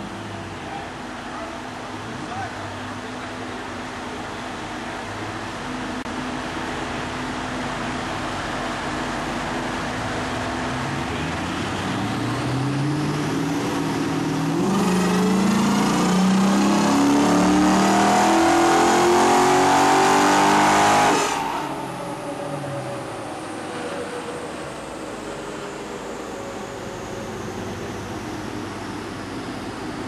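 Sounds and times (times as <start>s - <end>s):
car engine revving at full throttle: 10.1s - 30.0s.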